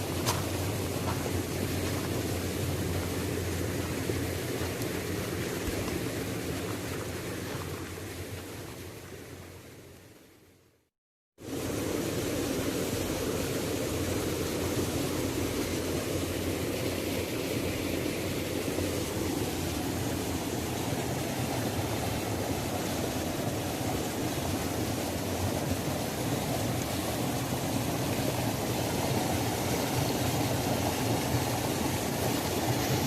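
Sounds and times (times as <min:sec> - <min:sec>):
waterfall rushing: 0:11.4 - 0:33.0.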